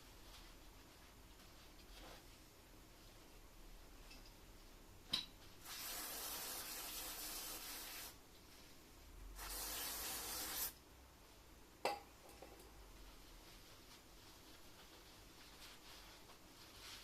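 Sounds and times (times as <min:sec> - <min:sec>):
hissing spray of pressurized gas: 0:05.6 - 0:08.2, 0:09.4 - 0:10.8.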